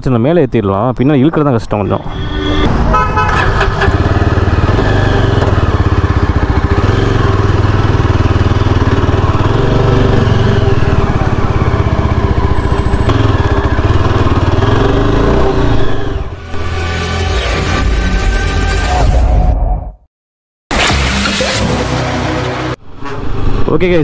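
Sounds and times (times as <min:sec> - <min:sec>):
motorcycle engine pulsing exhaust: 0:03.3 - 0:16.1.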